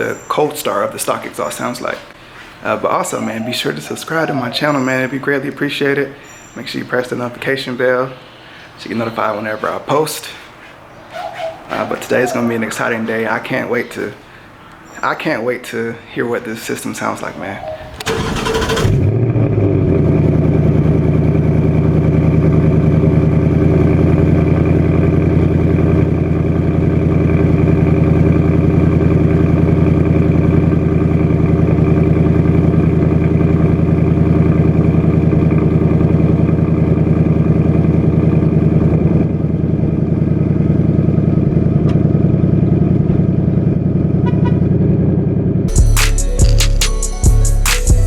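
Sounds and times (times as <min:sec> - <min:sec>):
car engine idling: 0:17.0 - 0:46.0.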